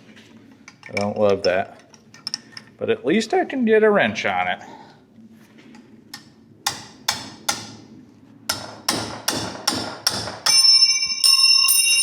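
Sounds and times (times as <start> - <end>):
hammer striking metal: 6.7 - 7.8, 8.5 - 12.0.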